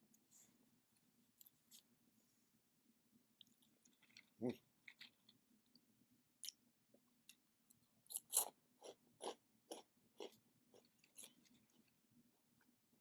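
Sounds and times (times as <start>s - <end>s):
person chewing crunchy food: 3.4s - 5.3s, 8.1s - 11.9s.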